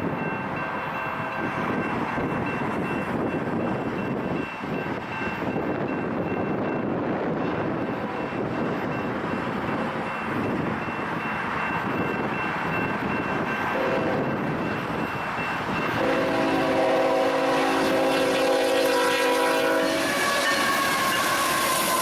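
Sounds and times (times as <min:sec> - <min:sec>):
train rumbling: 0:00.0 - 0:22.0
locomotive air horn: 0:13.8 - 0:14.3, 0:16.0 - 0:22.0.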